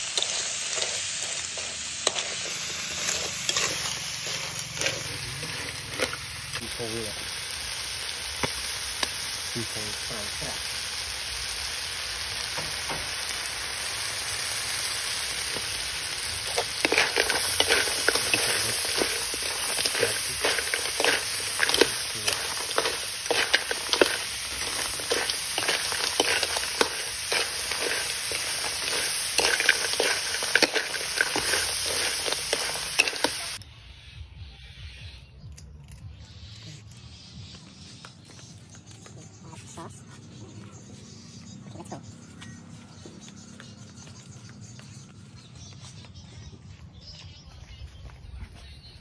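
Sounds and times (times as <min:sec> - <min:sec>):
metal spatula scraping pan: 0:00.0 - 0:06.2, 0:16.5 - 0:33.6
food sizzling in a wok: 0:00.0 - 0:33.6.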